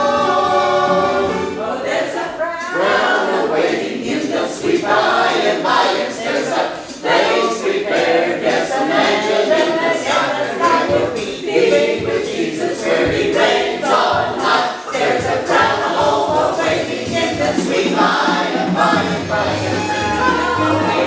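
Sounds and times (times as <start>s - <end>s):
group of voices singing: 0.0s - 21.0s.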